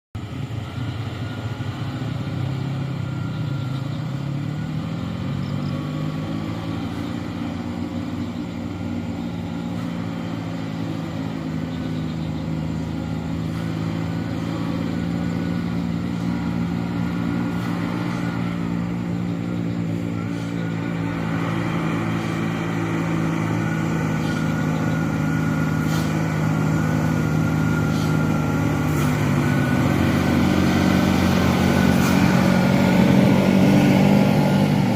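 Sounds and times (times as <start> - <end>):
dump truck diesel engine running: 0.2 - 34.9.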